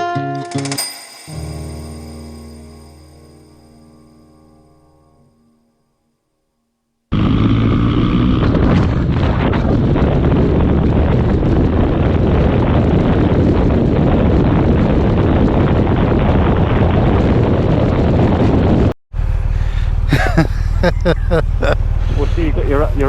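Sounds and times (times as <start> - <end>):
motorcycle engine: 7.1 - 23.0
wind buffeting microphone: 7.2 - 23.0.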